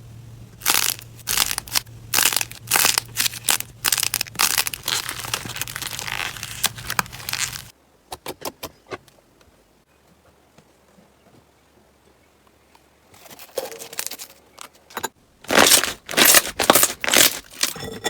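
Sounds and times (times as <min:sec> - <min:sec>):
faint low hum: 0:00.0 - 0:07.9
slime crackling when squeezed: 0:00.6 - 0:07.7, 0:15.5 - 0:17.7.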